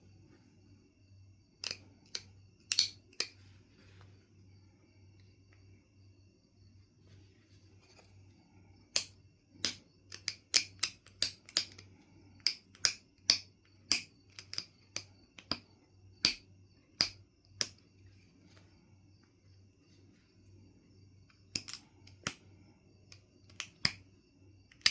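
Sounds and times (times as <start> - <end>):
flint knapping clicks: 1.6 - 3.4, 8.9 - 15.6, 17.0 - 17.8, 21.3 - 22.4, 23.1 - 24.0.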